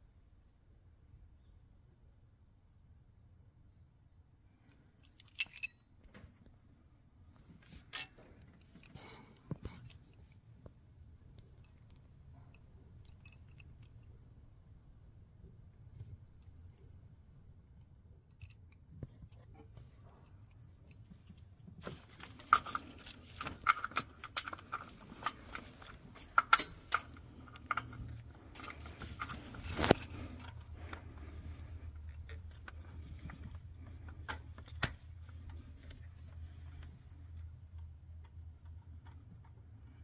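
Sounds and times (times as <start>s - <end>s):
faint low hum: 0.0s - 40.0s
metal tools clinking and scraping: 5.0s - 5.8s, 7.6s - 10.4s, 19.8s - 36.3s.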